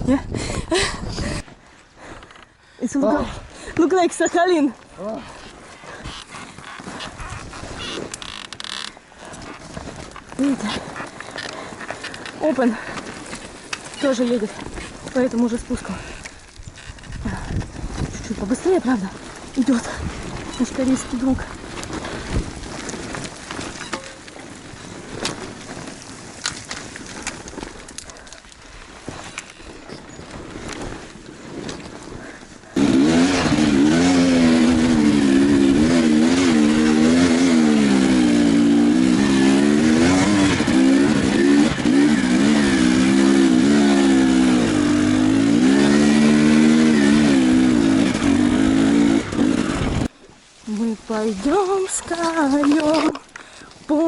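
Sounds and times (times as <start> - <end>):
motorcycle engine revving: 32.8 - 50.1.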